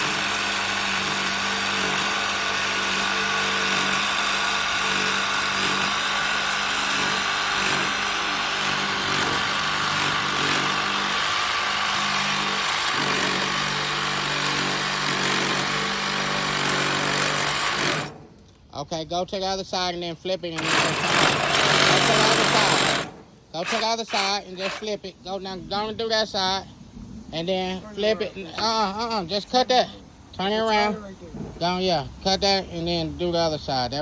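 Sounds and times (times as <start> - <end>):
power tool motor running: 0.0 - 18.4, 20.6 - 24.9.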